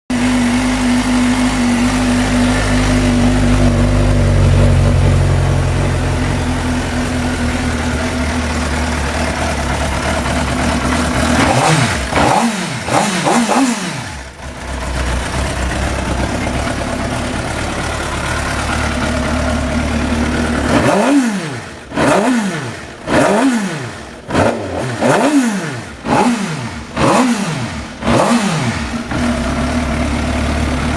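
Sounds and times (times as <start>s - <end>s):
motorcycle engine idling: 0.1s - 30.9s
engine revving in sharp blips: 11.3s - 14.3s, 20.7s - 29.6s.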